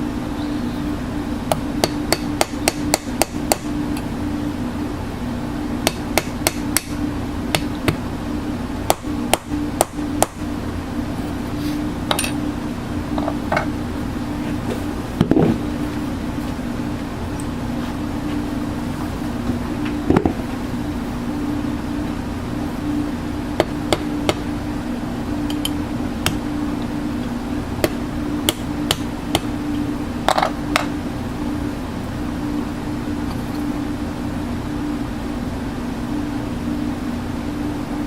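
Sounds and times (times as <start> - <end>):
machine hum: 0.0 - 38.0.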